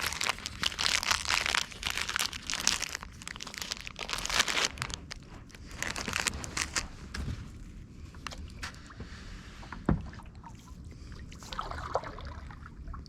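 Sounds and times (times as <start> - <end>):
crinkling rustle: 0.0 - 8.8.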